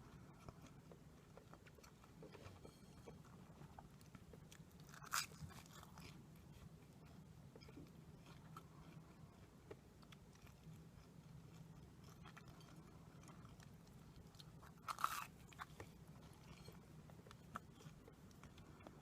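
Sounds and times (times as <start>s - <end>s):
faint chewing with mouth clicks: 0.0s - 19.0s
crisp crunch of a bite: 4.5s - 6.2s, 9.7s - 19.0s.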